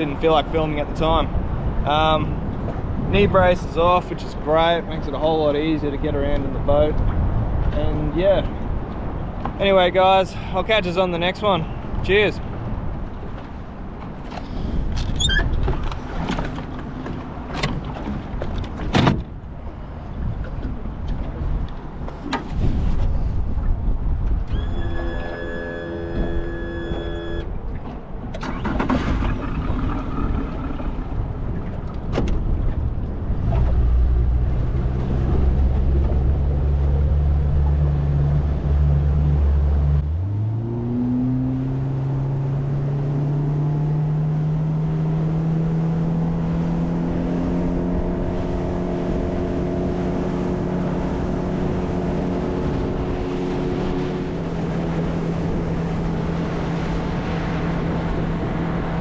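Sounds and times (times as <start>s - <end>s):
outboard motor running: 24.5s - 27.9s.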